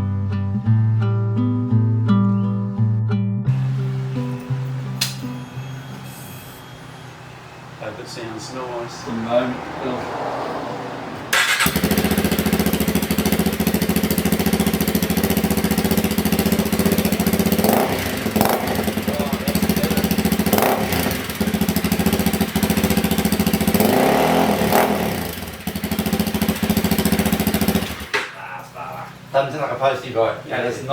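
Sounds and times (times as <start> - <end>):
motorcycle engine starting and idling: 7.8 - 30.9.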